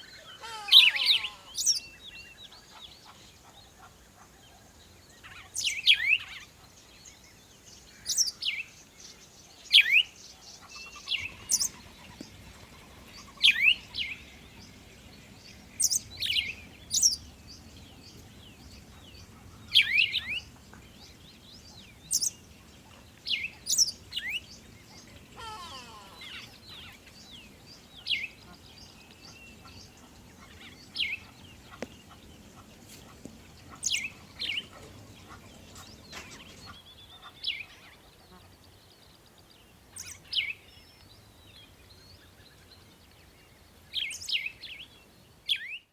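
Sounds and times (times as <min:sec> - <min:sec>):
soft bird twittering: 0:05.2 - 0:38.0.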